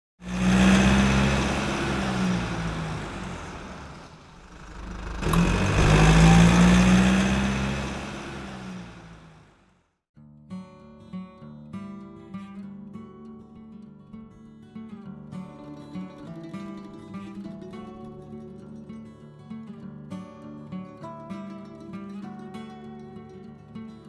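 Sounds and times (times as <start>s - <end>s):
car engine drone: 0.2s - 9.7s.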